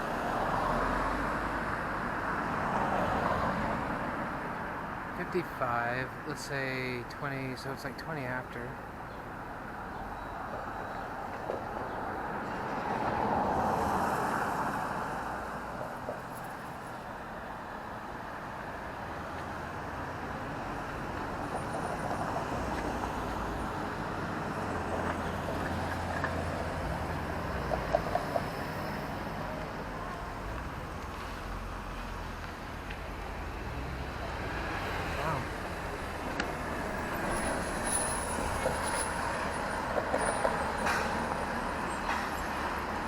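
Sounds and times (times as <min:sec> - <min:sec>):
road traffic hum: 0:00.0 - 0:43.0
vehicle passing by: 0:18.9 - 0:40.0.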